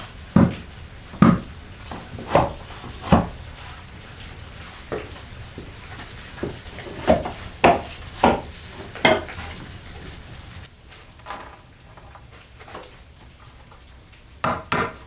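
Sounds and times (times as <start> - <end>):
sharp wooden knocks: 0.0 - 10.6
steady background noise: 0.0 - 11.4.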